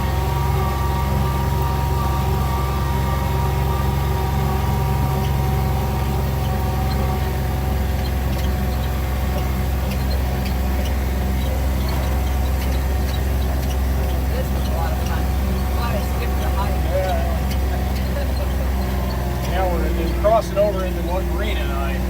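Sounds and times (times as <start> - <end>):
vehicle engine drone: 0.0 - 22.0
faint rattling ticks: 4.6 - 21.2.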